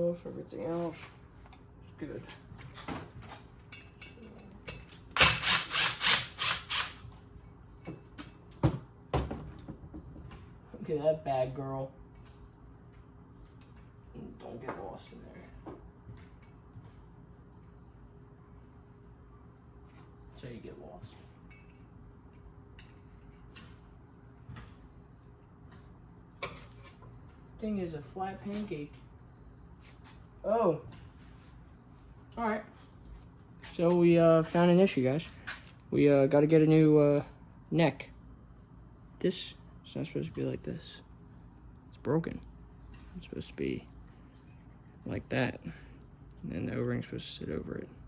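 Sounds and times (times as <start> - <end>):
steady low hum: 0.0 - 48.0
ratchet wrench rasping: 5.2 - 7.0.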